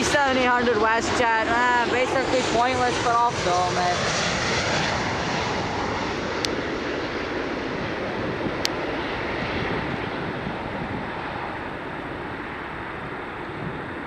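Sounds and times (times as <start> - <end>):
airliner jet noise: 0.0 - 14.0.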